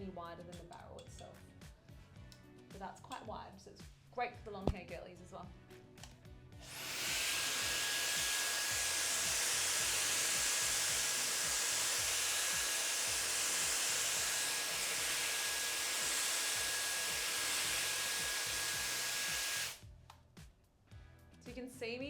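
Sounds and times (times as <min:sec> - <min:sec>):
hair dryer blowing air: 0:06.6 - 0:19.8.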